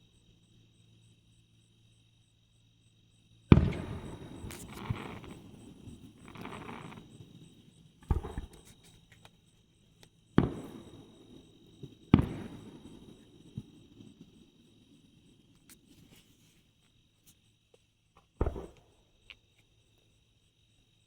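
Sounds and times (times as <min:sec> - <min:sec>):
faint insect chirp: 0:00.0 - 0:21.0
fireworks bangs with echo: 0:03.5 - 0:08.8, 0:10.4 - 0:15.1, 0:18.4 - 0:19.0.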